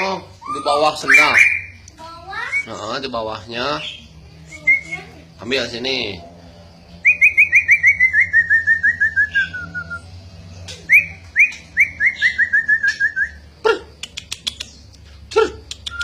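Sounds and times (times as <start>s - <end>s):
bird whistled song: 0.3s - 2.9s, 3.8s - 5.2s, 7.0s - 13.5s, 15.7s - 16.0s
sharp bird clicking calls: 10.6s - 13.2s, 13.9s - 16.0s.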